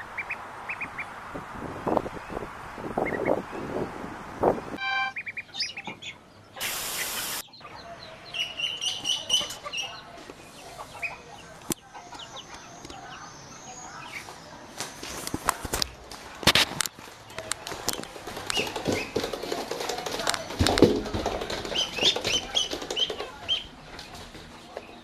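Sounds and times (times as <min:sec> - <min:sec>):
chicks peeping: 0:00.0 - 0:04.1, 0:04.8 - 0:15.2, 0:17.0 - 0:25.0
bird hissing: 0:06.6 - 0:07.4.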